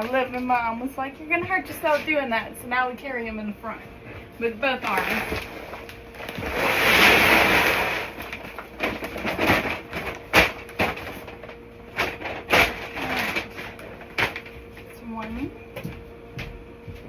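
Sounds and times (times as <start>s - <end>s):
knocks and rustles of bag and bucket: 4.0s - 16.0s
grain pouring into a bucket: 6.2s - 8.4s.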